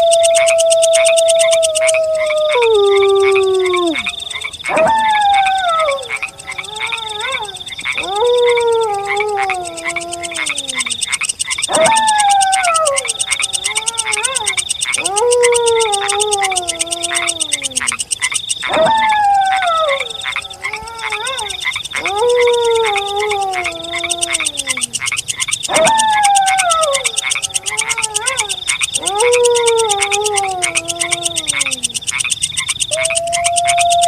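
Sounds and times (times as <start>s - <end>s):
wolf howling: 0.0s - 11.0s, 11.6s - 18.0s, 18.7s - 25.0s, 25.6s - 32.0s, 32.9s - 34.0s
fast-pulsing high chirring: 0.0s - 34.0s.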